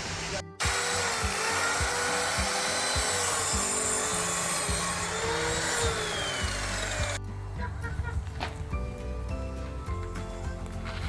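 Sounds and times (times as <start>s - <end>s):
power tool sawing: 0.2s - 7.2s.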